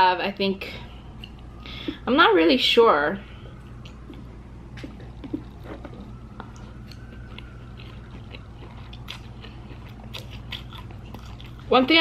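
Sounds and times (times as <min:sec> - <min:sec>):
person chewing noodles: 0:03.6 - 0:11.7.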